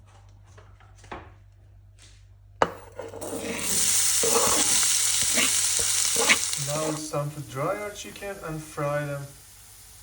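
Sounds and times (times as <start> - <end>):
onion sizzling in hot oil: 3.1 - 10.0.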